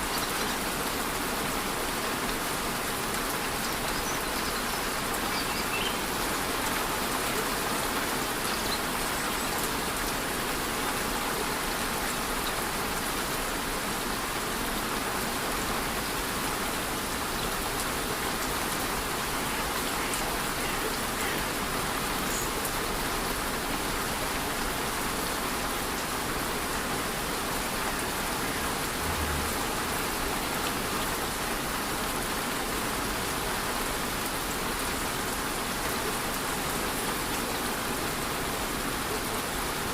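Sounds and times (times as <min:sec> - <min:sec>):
light rain on foliage: 0:00.0 - 0:39.9
waterfall rushing: 0:16.1 - 0:33.0.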